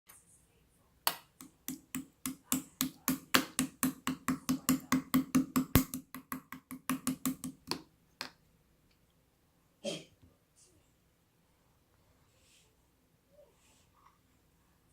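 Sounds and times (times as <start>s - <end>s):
rhythmic sharp slaps with thuds: 1.1s - 7.8s.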